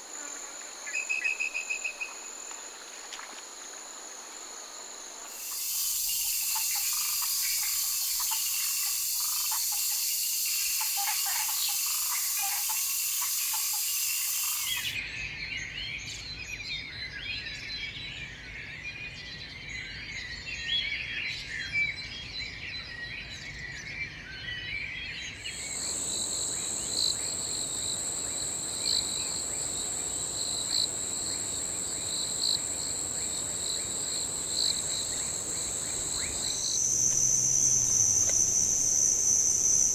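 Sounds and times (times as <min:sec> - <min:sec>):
high insect chorus: 0:00.0 - 0:15.0, 0:25.3 - 0:39.9
insect trill: 0:00.0 - 0:15.0, 0:25.4 - 0:39.9
bird calls: 0:05.4 - 0:15.0, 0:25.5 - 0:39.9.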